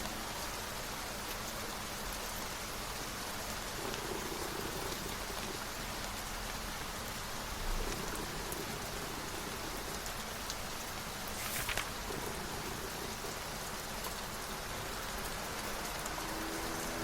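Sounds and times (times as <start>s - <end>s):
rain falling: 0.0s - 17.0s
crisp rustle: 11.2s - 12.4s.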